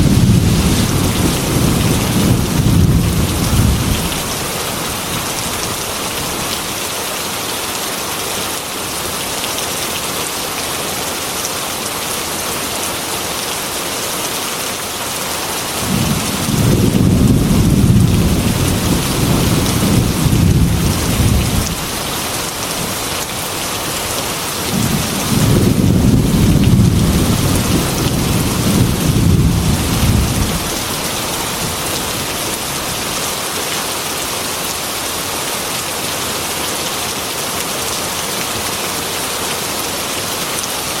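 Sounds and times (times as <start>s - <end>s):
low rumble of thunder: 0.0s - 4.4s, 15.8s - 22.0s, 24.7s - 31.8s
heavy rain on a metal roof: 0.0s - 41.0s.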